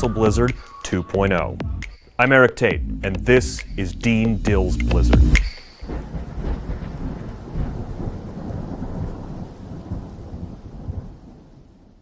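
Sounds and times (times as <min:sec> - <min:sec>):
low thunder rumble: 0:02.8 - 0:12.0
rain hiss: 0:04.4 - 0:11.9.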